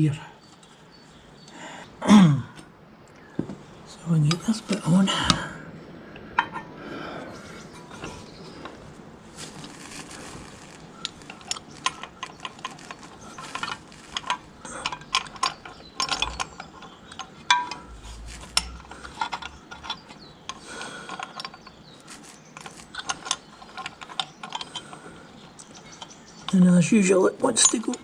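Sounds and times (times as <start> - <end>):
small metal parts clinking and scraping: 9.4 - 26.6.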